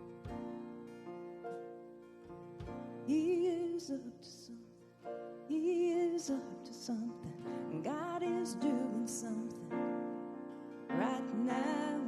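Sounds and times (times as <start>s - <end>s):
keyboard and guitar chords: 0.0s - 3.1s.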